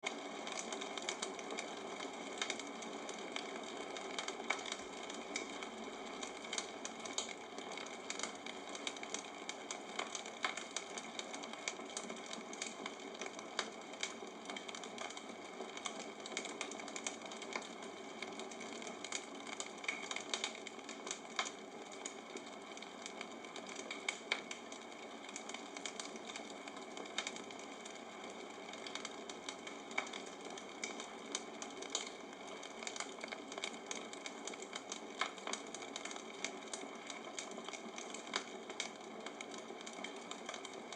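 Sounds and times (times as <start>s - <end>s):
bonfire crackling and popping: 0.0s - 40.9s.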